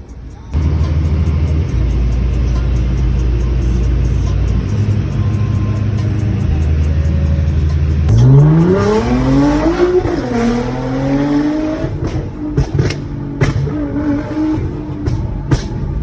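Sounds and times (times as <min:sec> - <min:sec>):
sports car engine at full throttle: 0:00.1 - 0:16.0
exhaust pops and bangs: 0:11.8 - 0:16.0.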